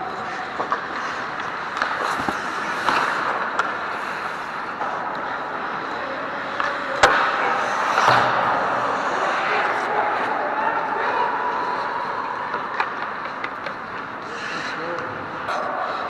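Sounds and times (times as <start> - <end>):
hockey stick and puck clicks: 0.1 - 5.9, 6.5 - 8.4, 12.5 - 14.3
skates scraping on ice: 0.1 - 16.0.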